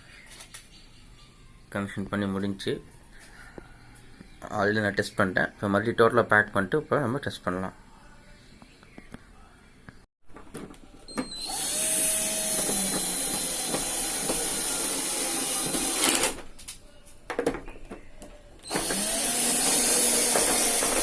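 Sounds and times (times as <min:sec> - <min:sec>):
drill-driver whining: 0:11.1 - 0:16.4, 0:18.6 - 0:21.0.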